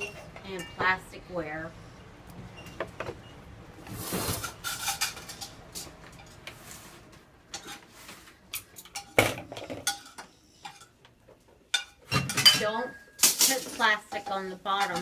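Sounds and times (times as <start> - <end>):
dishes clattering into dishwasher: 11.7 - 15.0.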